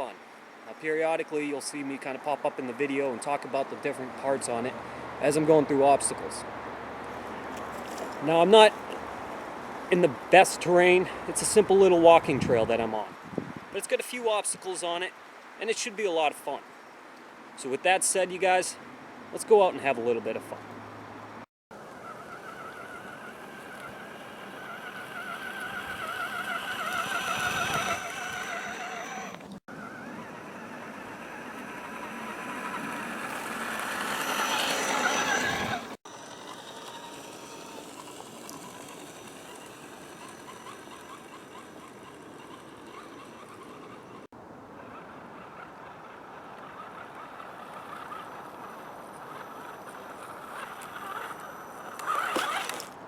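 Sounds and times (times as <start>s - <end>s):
electric motor and gears whining: 21.8s - 44.3s, 46.0s - 53.0s.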